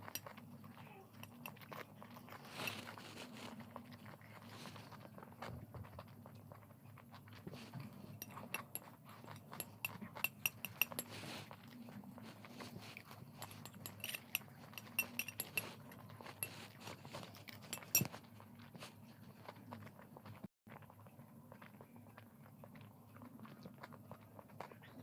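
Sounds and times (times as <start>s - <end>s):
spoon clinking against a dish: 0.0s - 0.4s, 1.1s - 1.8s, 8.2s - 11.2s, 13.3s - 18.2s.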